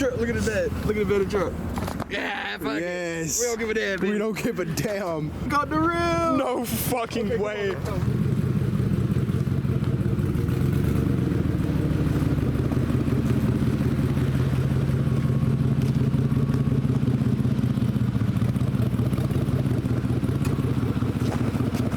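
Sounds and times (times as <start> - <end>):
vehicle engine humming: 0.0 - 21.9.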